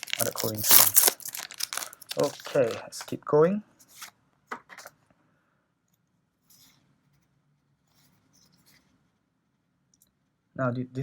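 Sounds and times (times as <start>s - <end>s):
cards rustling against cards: 0.0s - 3.2s, 3.8s - 4.9s.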